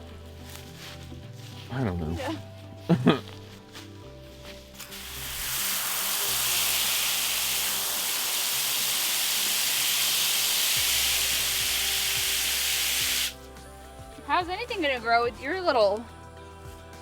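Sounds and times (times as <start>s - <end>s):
garden hose spraying water: 4.6s - 13.5s.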